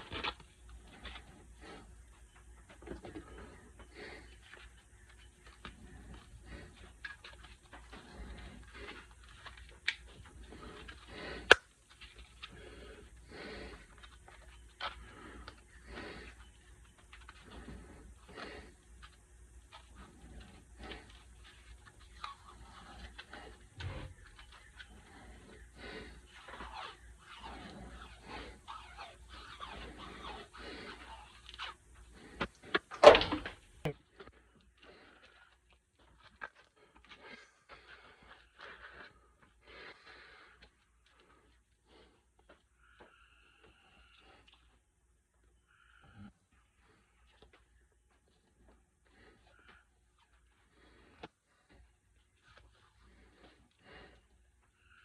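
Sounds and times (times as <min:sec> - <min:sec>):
rustling and scraping of small parts: 0:00.0 - 0:39.6.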